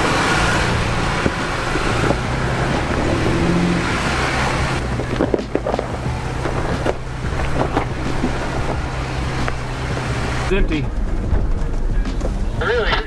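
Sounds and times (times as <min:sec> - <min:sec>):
off-road vehicle engine running: 0:00.0 - 0:13.0
wind noise: 0:00.0 - 0:13.0.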